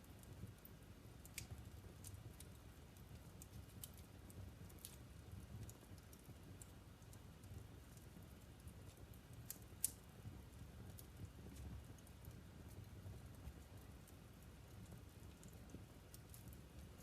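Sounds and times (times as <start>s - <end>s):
fire crackling and popping: 0.0s - 17.0s
low rumble of flames: 0.0s - 17.0s.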